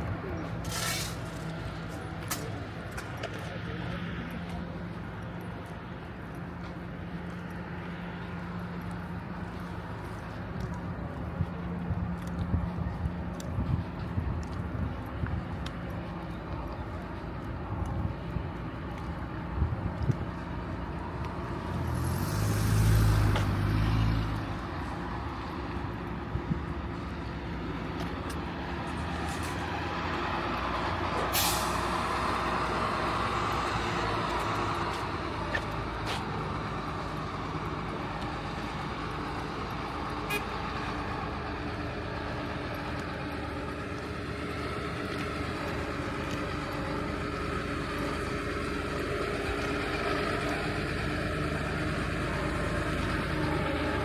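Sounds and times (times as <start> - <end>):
heavy vehicle passing with hiss: 0.0 - 2.6, 20.3 - 54.0
street traffic: 0.0 - 54.0.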